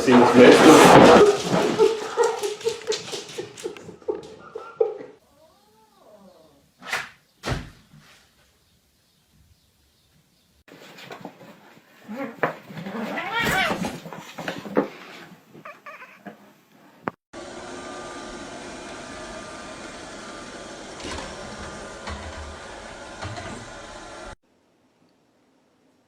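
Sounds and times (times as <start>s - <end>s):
cat yowling: 12.1s - 13.9s, 15.6s - 16.4s.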